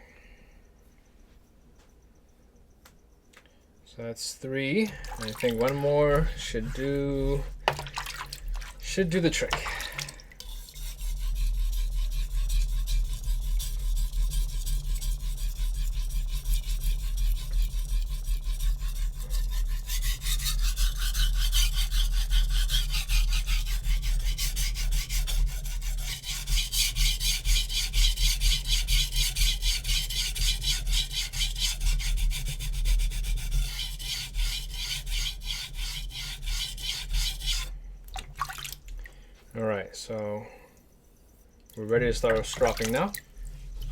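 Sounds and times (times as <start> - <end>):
knife scraping on whetstone: 5.4 - 7.9, 10.4 - 37.7.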